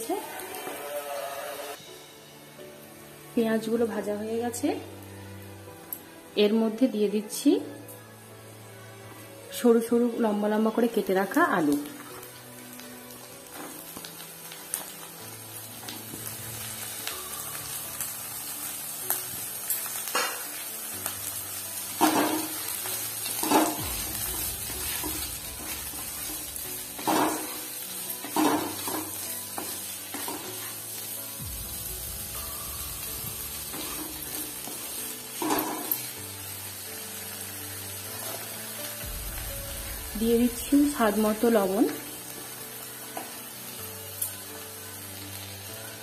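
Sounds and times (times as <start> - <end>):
potatoes sizzling in oil: 0.0 - 46.0.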